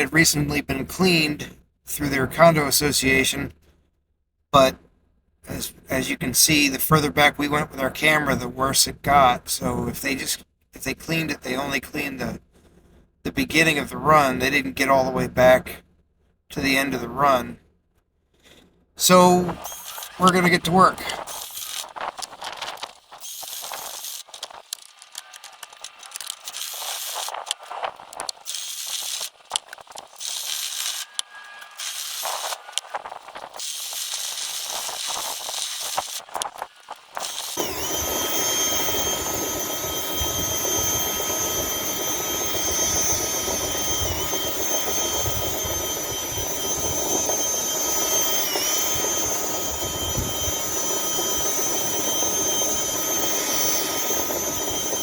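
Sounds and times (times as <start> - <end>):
power tool motor whining: 19.1 - 55.0.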